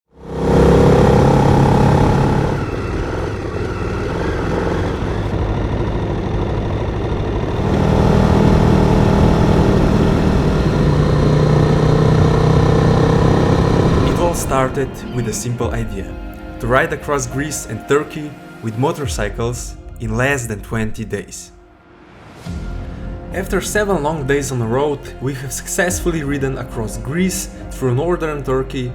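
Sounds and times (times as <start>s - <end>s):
motorcycle engine running: 0.1s - 16.3s.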